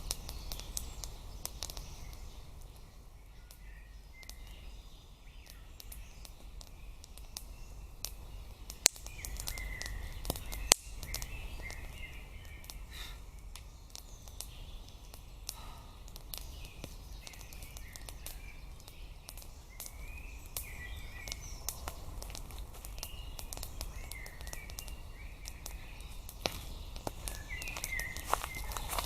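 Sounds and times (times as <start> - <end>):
sharp clicks and snaps: 0.0 - 2.8, 4.2 - 4.4, 5.4 - 12.8, 13.4 - 29.0
birds chirping: 0.0 - 29.0.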